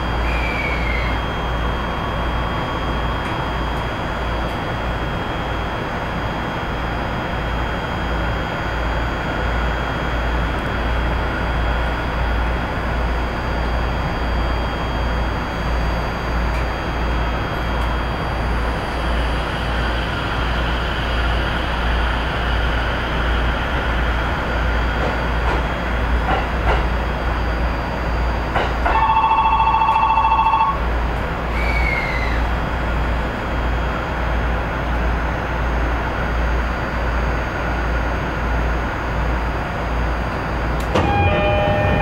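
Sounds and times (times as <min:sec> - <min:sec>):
short falling whine: 0:00.0 - 0:05.6, 0:40.8 - 0:42.0
train wheels rumbling on rails: 0:16.4 - 0:30.1, 0:39.1 - 0:42.0
two-tone ringing bell: 0:28.9 - 0:30.8, 0:41.0 - 0:42.0.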